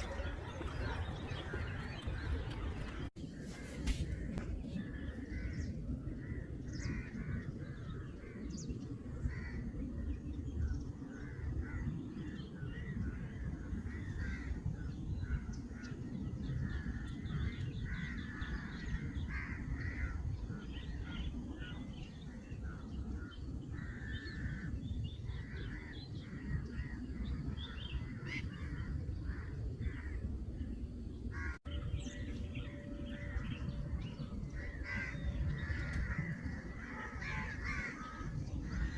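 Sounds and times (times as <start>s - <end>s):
many birds calling: 0.0s - 8.4s, 31.3s - 38.9s
steady low rumble: 0.0s - 38.9s.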